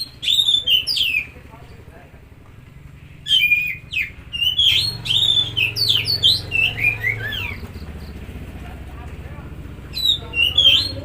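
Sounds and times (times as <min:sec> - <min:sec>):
bird singing whistled phrases: 0:00.0 - 0:01.4, 0:03.2 - 0:08.1, 0:09.9 - 0:11.0.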